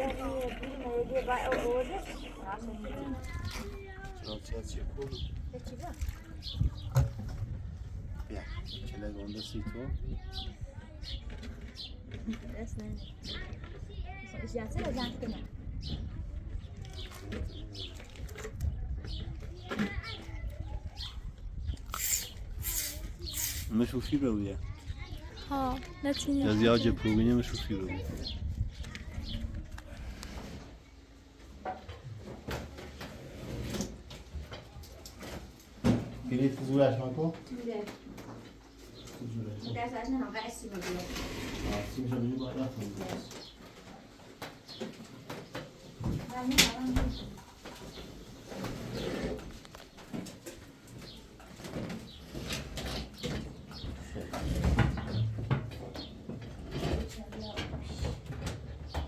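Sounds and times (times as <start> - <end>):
knocks and scrapes of handling: 40.7 - 59.0.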